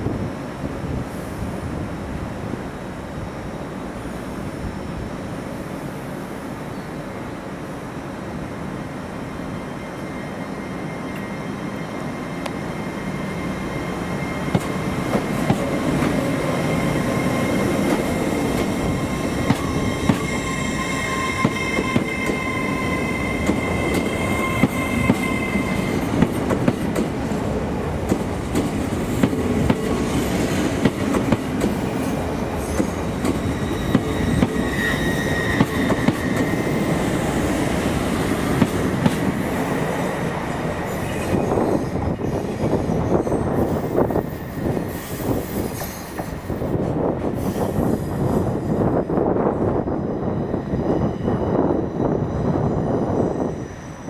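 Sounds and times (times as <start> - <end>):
train passing: 0.0 - 54.0
high wheel squeal: 9.4 - 26.8, 31.8 - 46.6
wheels clacking over rail joints: 21.4 - 34.7.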